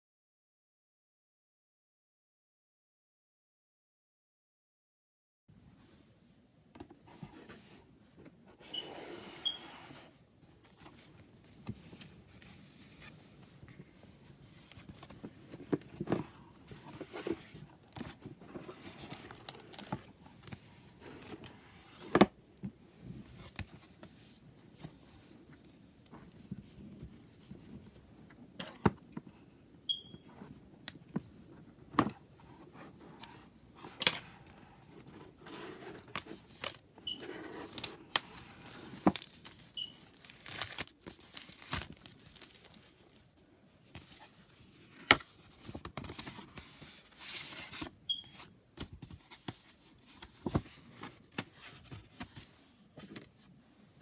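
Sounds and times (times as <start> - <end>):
packaging rustling and crinkling: 11.8 - 21.6, 34.4 - 43.3.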